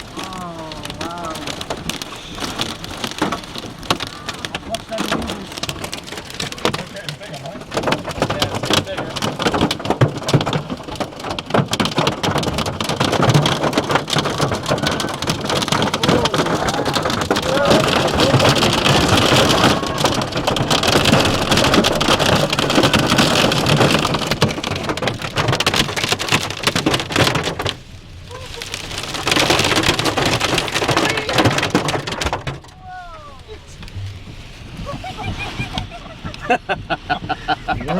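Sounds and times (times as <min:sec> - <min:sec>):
hail clattering on a car: 0:00.0 - 0:37.9.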